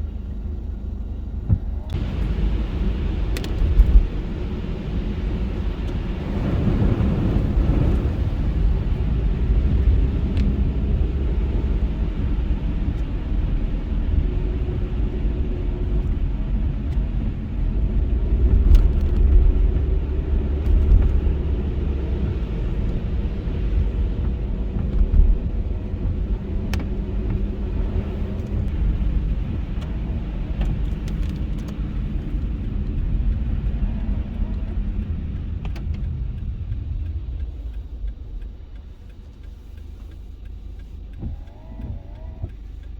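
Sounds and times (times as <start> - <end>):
car driving on snowy road: 0.0 - 42.9.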